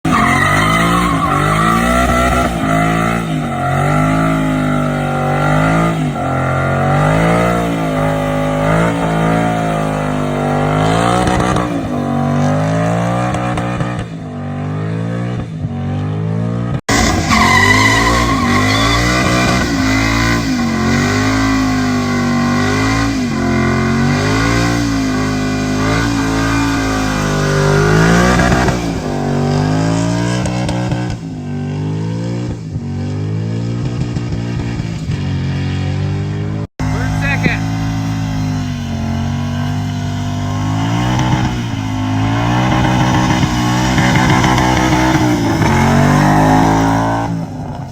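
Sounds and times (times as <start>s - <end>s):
car engine revving hard: 0.0s - 47.9s
tyres squealing: 0.1s - 5.3s, 16.9s - 19.8s.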